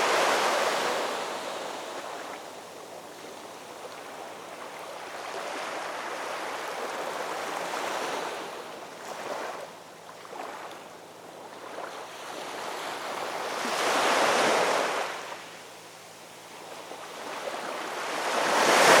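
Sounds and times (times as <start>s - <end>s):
ocean waves crashing: 18.4s - 19.0s.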